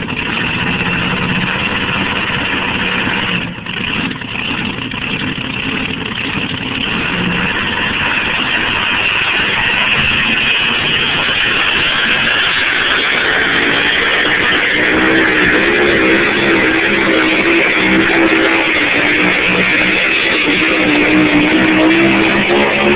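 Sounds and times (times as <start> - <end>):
truck engine running hard: 0.0 - 22.9
wavering pitched tone: 0.1 - 22.9
loud guitar music: 7.7 - 22.9.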